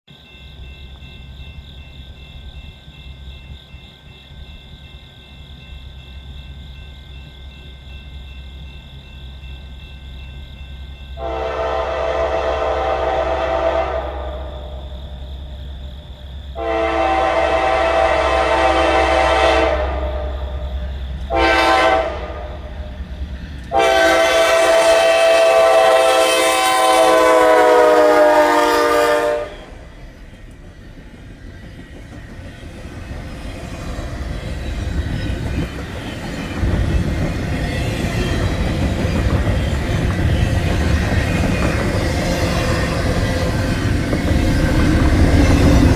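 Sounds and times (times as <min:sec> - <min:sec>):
train rumble and wheel clatter: 0:00.1 - 0:45.9
locomotive air horn blasts: 0:11.2 - 0:14.8, 0:16.6 - 0:20.4, 0:21.3 - 0:22.7, 0:23.7 - 0:29.7.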